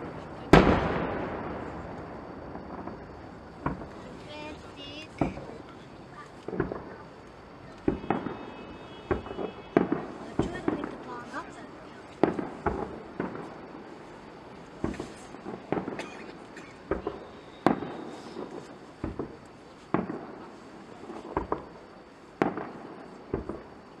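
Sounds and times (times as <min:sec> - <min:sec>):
background rumble: 0:00.0 - 0:15.9
firework shells bursting: 0:00.0 - 0:21.8.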